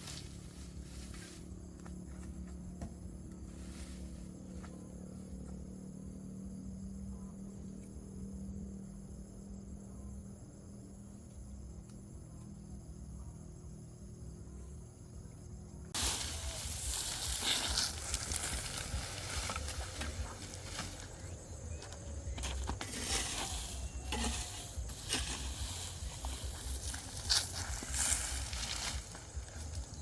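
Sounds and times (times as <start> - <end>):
crickets chirring: 0.0 - 30.0
rustling and scraping: 16.0 - 30.0.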